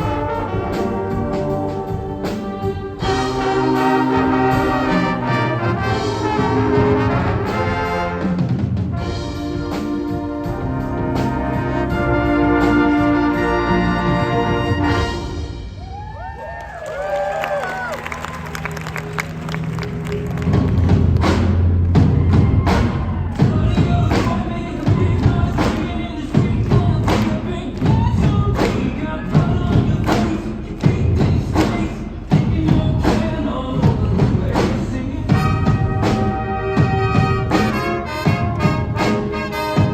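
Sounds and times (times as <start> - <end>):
wind band playing chords: 0.0 - 16.0, 17.1 - 39.9
drum hits: 20.4 - 39.9.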